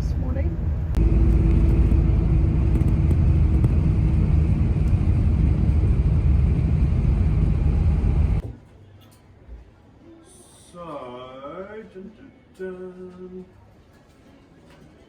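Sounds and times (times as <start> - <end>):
bus engine rumble: 0.0 - 8.4
road noise: 0.0 - 8.4.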